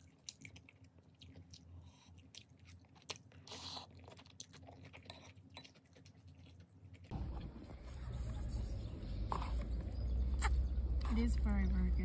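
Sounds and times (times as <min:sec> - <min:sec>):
close-up chewing noodles: 0:00.0 - 0:07.9, 0:09.2 - 0:11.2
low outdoor rumble: 0:06.7 - 0:12.0.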